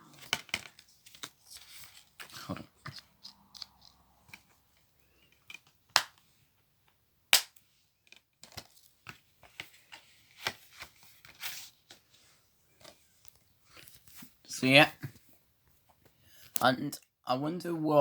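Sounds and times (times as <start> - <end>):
plastic case clicks and snaps: 5.9 - 6.2.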